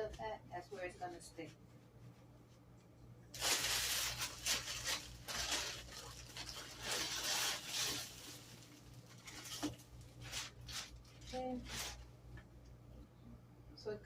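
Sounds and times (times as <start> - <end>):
plastic packaging rustling: 3.3 - 12.1.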